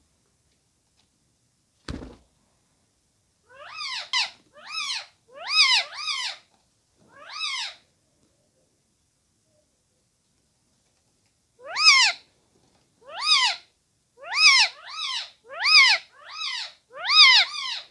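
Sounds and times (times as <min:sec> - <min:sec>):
short thump: 0:01.9 - 0:02.2.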